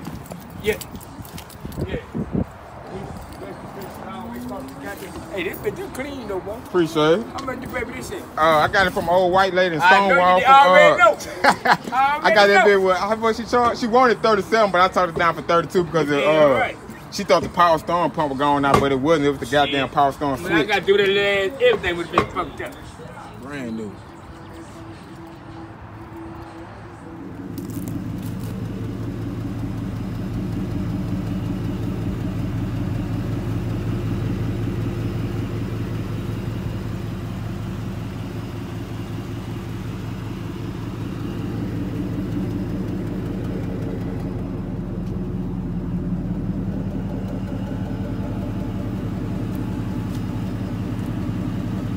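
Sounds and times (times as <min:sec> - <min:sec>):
car engine idling: 0:27.0 - 0:51.9.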